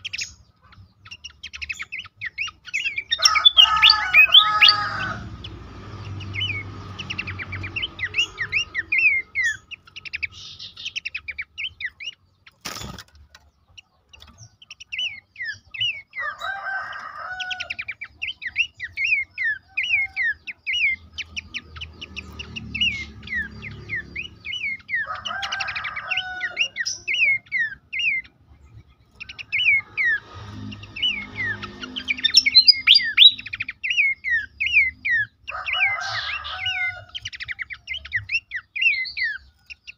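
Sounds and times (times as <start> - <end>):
bird calling rapid notes: 2.5 - 5.2, 30.9 - 35.3.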